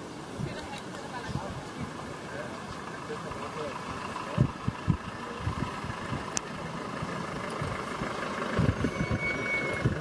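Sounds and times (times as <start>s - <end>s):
vehicle engine idling: 0.0s - 10.0s
low bumps: 2.7s - 10.0s.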